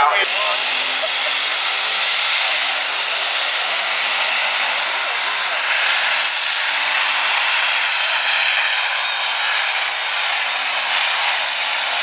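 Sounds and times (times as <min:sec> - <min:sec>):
diesel engine roaring under load: 0:00.0 - 0:12.0
turbo whine: 0:00.0 - 0:12.0.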